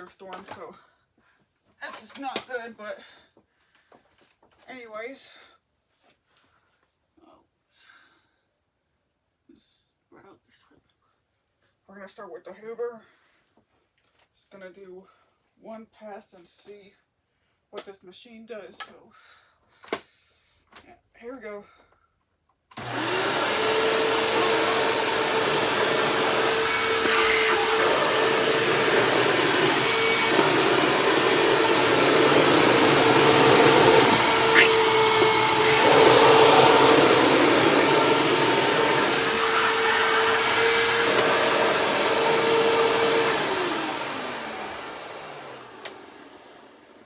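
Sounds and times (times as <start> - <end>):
vacuum cleaner running: 22.8 - 47.0
vacuum motor winding down: 22.8 - 47.0.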